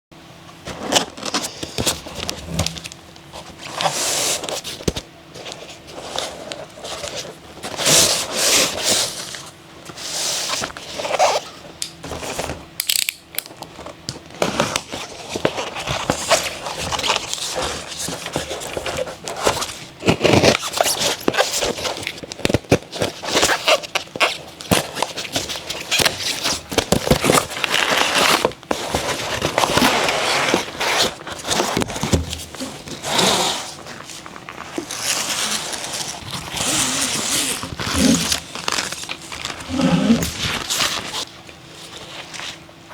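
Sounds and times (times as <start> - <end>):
packaging rustling and clicking: 0.6 - 42.7.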